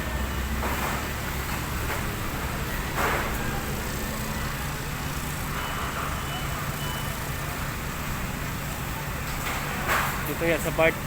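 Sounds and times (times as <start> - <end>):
engine rumbling: 0.0 - 11.0
outdoor background noise: 0.0 - 11.0.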